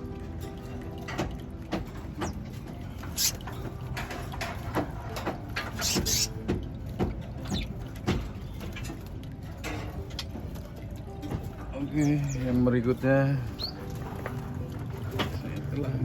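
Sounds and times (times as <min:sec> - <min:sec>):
birds knocking and rustling in cage: 0:00.0 - 0:16.0
high-pitched bird burst: 0:03.1 - 0:03.5, 0:05.8 - 0:06.4.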